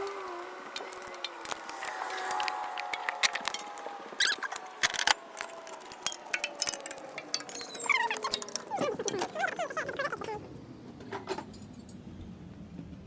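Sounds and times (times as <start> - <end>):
squeaky chirps: 0.0 - 10.4
wrench clicking on metal: 0.7 - 9.3.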